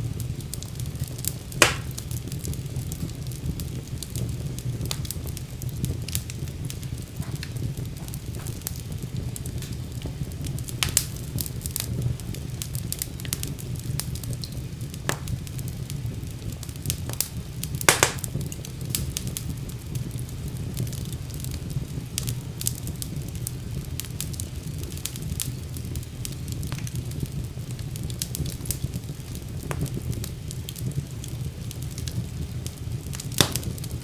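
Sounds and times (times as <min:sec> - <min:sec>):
fire crackles and pops: 0:00.0 - 0:34.0
fire flames rumbling: 0:00.0 - 0:34.0.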